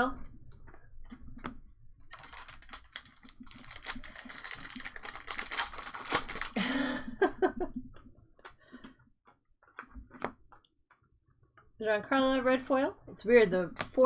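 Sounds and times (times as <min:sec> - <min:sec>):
wrapper crackling as torn open: 0:02.0 - 0:07.0.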